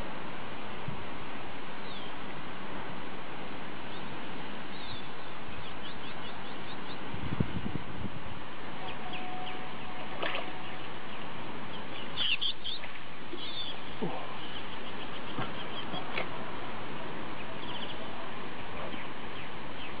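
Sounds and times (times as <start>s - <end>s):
steady outdoor noise: 0.0s - 20.0s
small birds chirping: 1.8s - 2.2s, 3.8s - 7.2s, 8.8s - 16.4s, 17.0s - 20.0s.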